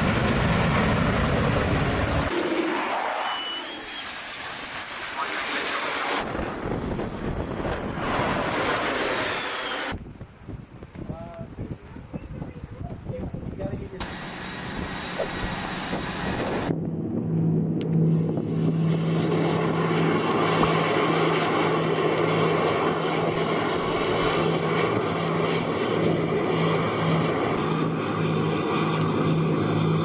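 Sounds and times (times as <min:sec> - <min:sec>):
large engine droning: 0:14.0 - 0:30.0.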